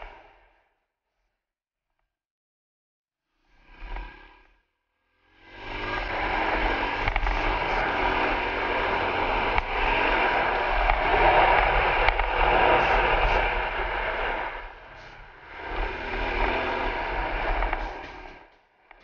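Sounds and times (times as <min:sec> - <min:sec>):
wind rush over microphone: 0:05.6 - 0:18.5
dirt bike engine running: 0:05.6 - 0:19.0.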